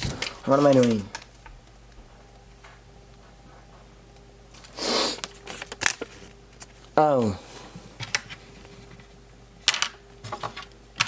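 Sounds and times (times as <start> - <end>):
plastic toy pieces rustling: 0.0 - 1.4.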